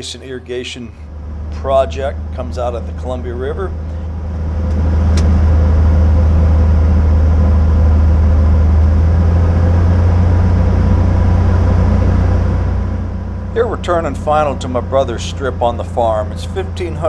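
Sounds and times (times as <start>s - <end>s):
plane engine and propeller drone: 0.0s - 17.0s.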